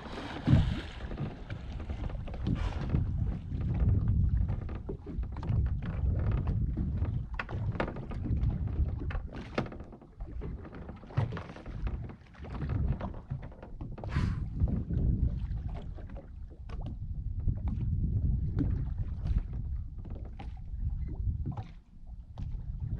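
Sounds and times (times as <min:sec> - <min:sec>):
water slapping boat hull: 0:00.0 - 0:22.9
wind rumbling on microphone: 0:00.0 - 0:22.9
short hissing puff: 0:14.1 - 0:14.5.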